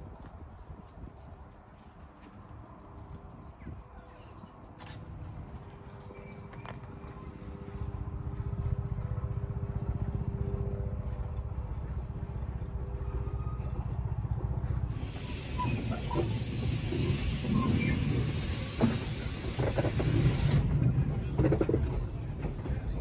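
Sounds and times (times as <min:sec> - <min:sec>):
steam locomotive running: 0:14.4 - 0:23.0
loud hiss of steam: 0:14.9 - 0:21.0.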